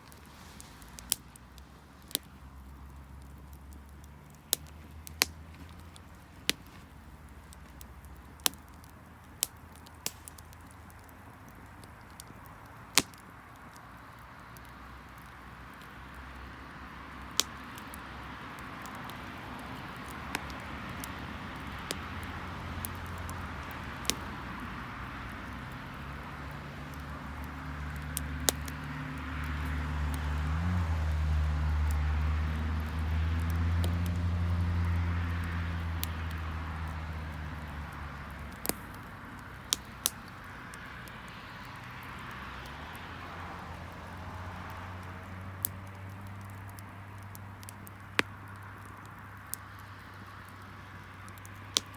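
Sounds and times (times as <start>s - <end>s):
wood fire crackling: 0.0s - 51.9s
vehicle engine hum: 13.4s - 51.8s.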